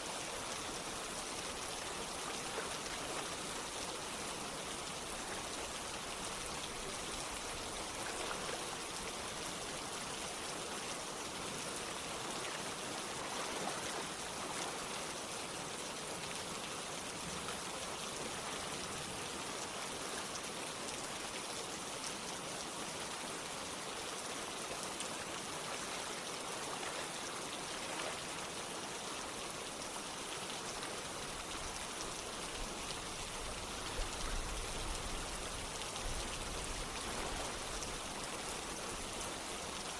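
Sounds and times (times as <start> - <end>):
rain falling: 0.0 - 39.9
running water: 0.0 - 39.9.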